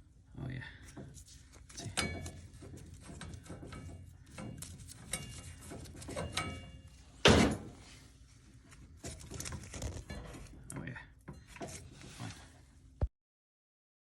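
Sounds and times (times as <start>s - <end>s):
metal tools knocking and scraping: 0.9s - 7.8s.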